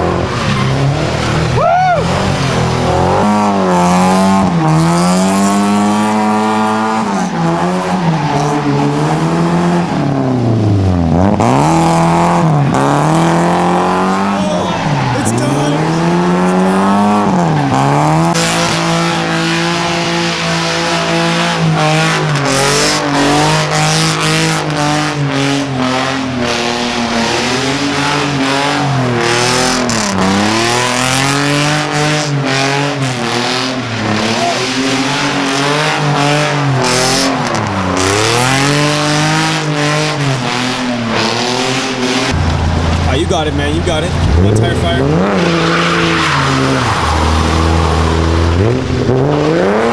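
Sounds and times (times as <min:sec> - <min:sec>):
car engine revving: 0:00.0 - 0:49.9
tire screeching: 0:00.0 - 0:49.9.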